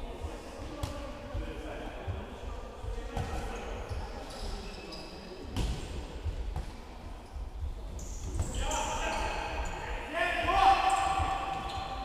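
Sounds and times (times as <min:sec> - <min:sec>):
shoes squeaking on floor: 0:03.5 - 0:05.4, 0:10.6 - 0:12.0.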